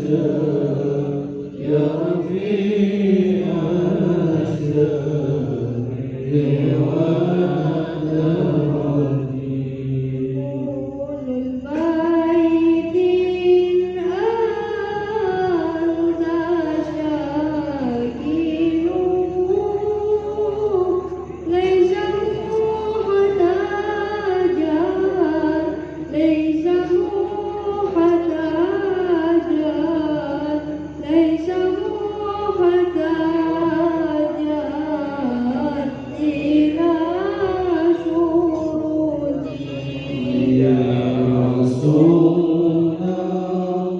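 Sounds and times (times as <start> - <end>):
man singing a devotional chant: 0.0 - 31.4, 32.1 - 43.9
man chanting in long notes: 33.5 - 43.9.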